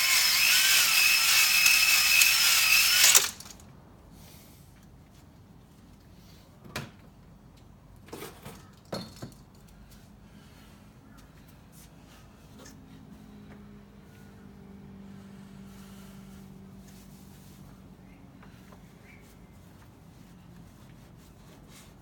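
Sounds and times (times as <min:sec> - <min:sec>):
electric drill spinning a hone: 0:00.0 - 0:03.6.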